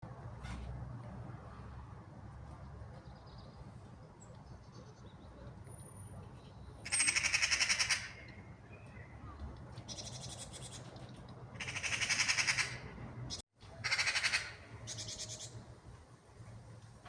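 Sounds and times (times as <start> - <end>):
magpie chattering alarm call: 6.9 - 8.3, 11.6 - 12.8, 13.8 - 15.6.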